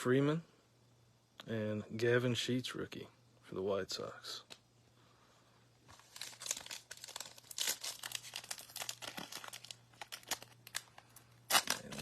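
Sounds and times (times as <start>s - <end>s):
faint hum: 0.0s - 12.0s
foil wrapper tearing and crinkling: 6.0s - 12.0s.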